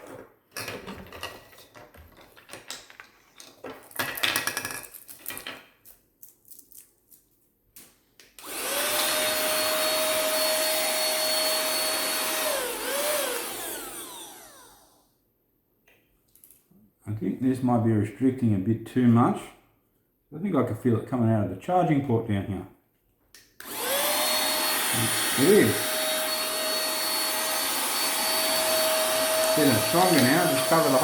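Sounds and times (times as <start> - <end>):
handheld vacuum cleaner whine: 8.4 - 15.1, 23.6 - 31.0.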